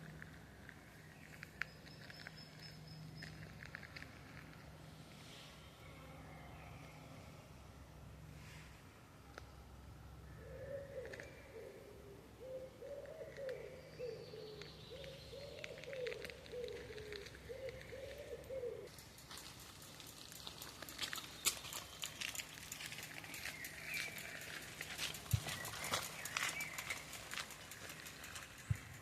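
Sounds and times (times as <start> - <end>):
small birds chirping: 10.4 - 29.0
pigeon cooing: 15.0 - 18.9
footsteps crunching on forest floor: 19.2 - 28.0.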